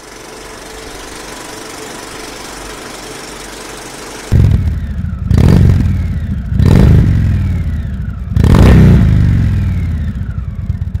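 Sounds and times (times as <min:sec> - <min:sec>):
motorcycle engine revving: 0:04.2 - 0:11.0.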